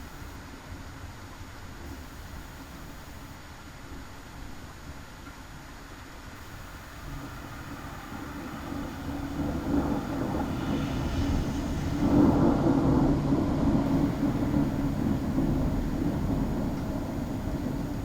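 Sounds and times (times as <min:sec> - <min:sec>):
rolling thunder rumble: 0:06.6 - 0:18.0.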